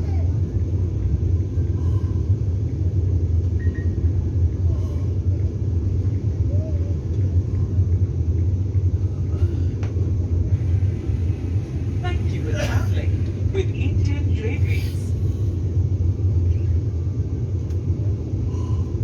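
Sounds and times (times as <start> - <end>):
train coach rumble: 0.0 - 19.0
faint voices: 11.9 - 15.2.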